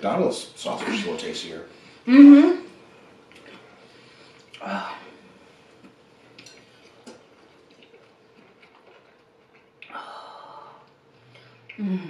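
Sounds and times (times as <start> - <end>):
chewing and mouth noises: 3.3 - 4.6, 5.7 - 10.0.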